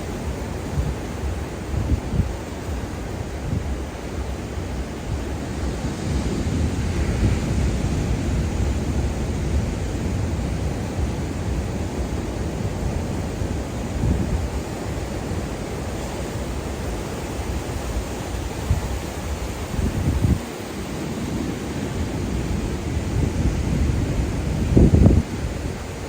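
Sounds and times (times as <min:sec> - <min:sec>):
ocean surf washing onto beach: 0:00.0 - 0:26.0
wind rumbling on microphone: 0:00.0 - 0:26.0.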